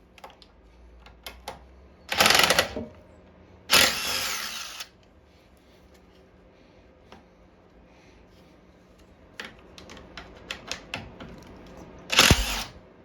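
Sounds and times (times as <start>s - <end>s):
power drill whirring: 2.1s - 2.8s, 3.7s - 4.9s, 12.1s - 12.8s.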